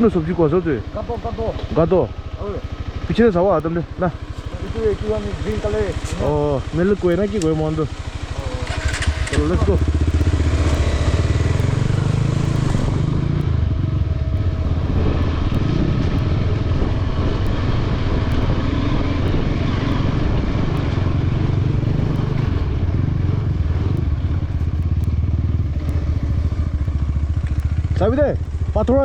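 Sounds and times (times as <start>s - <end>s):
motorcycle engine under load: 0.0s - 29.0s.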